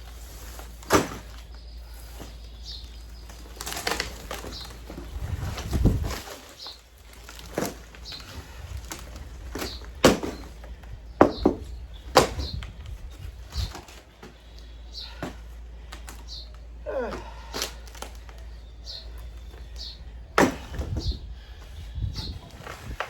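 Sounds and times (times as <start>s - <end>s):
hand tool chopping wood: 0.9s - 1.4s, 9.5s - 10.6s, 11.2s - 12.6s, 20.4s - 21.0s.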